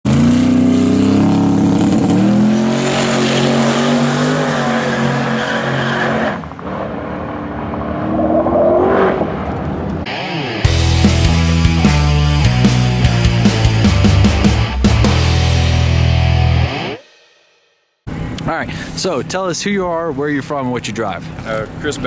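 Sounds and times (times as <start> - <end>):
race car engine at full throttle: 0.0 - 16.8.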